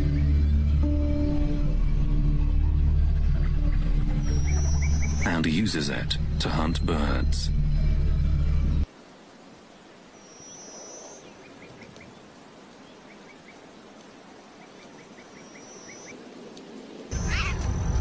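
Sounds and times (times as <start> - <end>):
birds chirping: 2.4 - 8.9, 9.5 - 16.2, 17.1 - 18.0
small birds whistling: 4.1 - 5.6, 10.2 - 12.2, 14.6 - 16.2.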